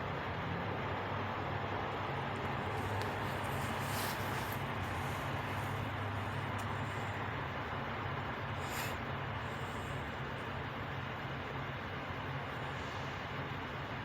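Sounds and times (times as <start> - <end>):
truck engine idling: 0.1 - 14.0
brief hiss: 8.6 - 9.0.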